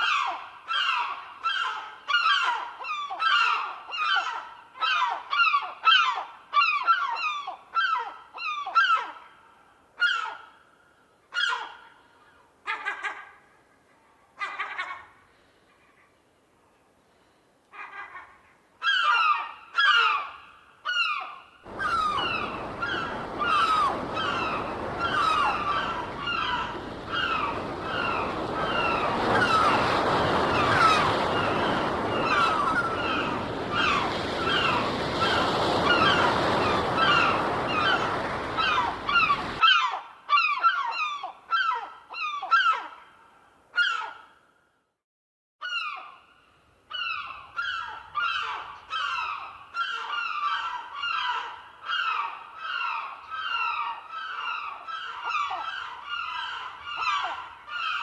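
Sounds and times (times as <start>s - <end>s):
gulls calling: 21.7s - 39.6s
surf washing: 21.7s - 39.6s.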